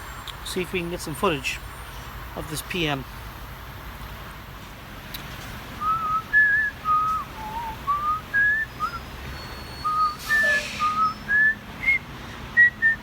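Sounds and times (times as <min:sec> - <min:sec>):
person whistling a tune: 0:05.8 - 0:13.0
short hiss: 0:10.2 - 0:11.1.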